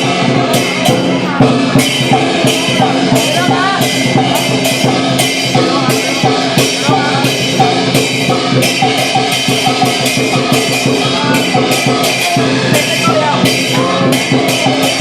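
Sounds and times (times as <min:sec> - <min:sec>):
clashing cymbals: 0:00.0 - 0:15.0
drum beating: 0:00.0 - 0:15.0.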